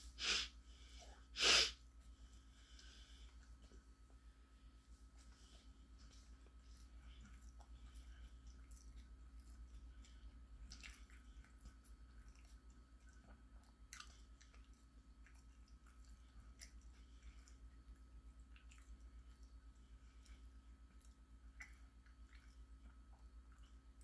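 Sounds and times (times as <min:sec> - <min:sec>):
faint chewing: 0:02.0 - 0:24.0.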